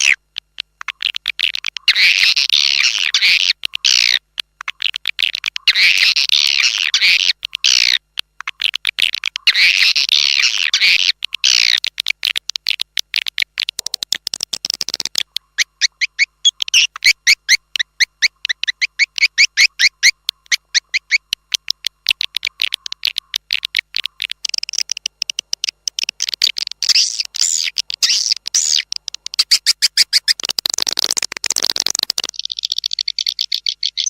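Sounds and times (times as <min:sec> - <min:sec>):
clicking bird chatter: 0:00.0 - 0:34.0
high bird chirps: 0:14.6 - 0:34.0.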